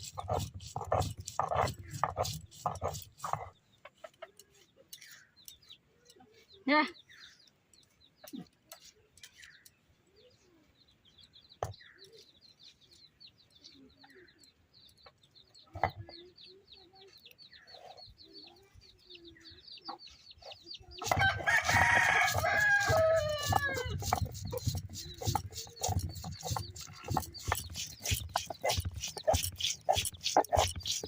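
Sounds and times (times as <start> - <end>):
rooster crowing: 21.2 - 24.0.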